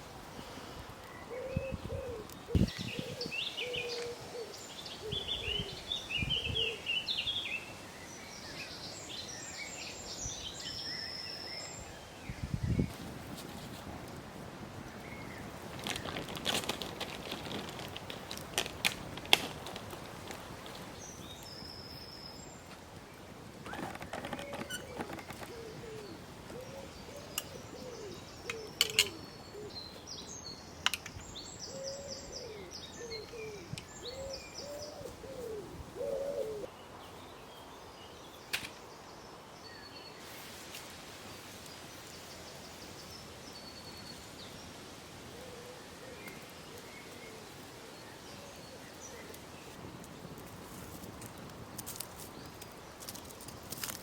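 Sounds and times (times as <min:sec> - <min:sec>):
small birds chirping: 0:23.6 - 0:40.5.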